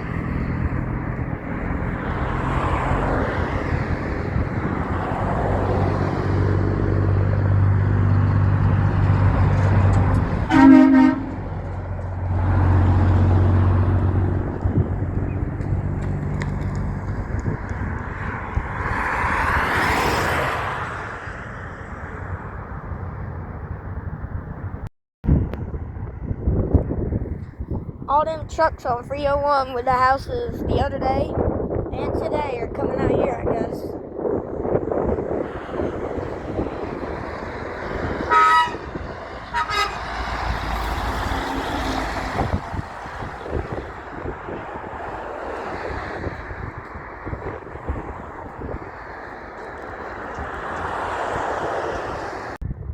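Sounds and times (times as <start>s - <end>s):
heavy truck passing by: 0.0s - 24.8s, 34.0s - 52.6s
road noise: 0.0s - 52.9s
truck horn blasts: 10.4s - 11.6s, 38.2s - 40.5s.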